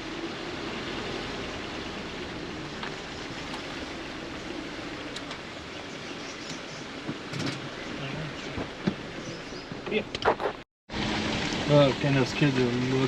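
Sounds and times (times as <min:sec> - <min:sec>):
car running on rough track: 0:00.0 - 0:13.0.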